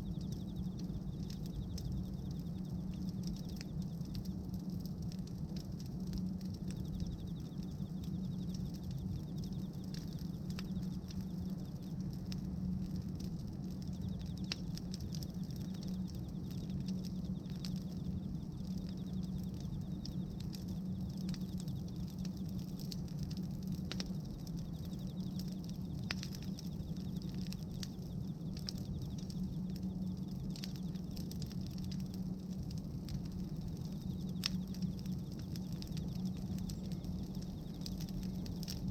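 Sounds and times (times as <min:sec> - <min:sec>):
bonfire crackling: 0:00.0 - 0:38.9
low rumble of fire: 0:00.0 - 0:38.9.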